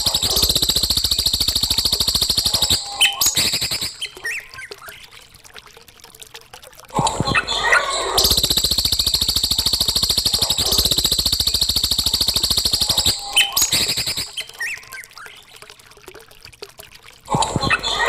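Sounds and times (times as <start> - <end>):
songbird buzzy trill: 0.0 - 4.5, 8.2 - 14.9
bird chirps: 0.0 - 4.6, 8.2 - 15.4.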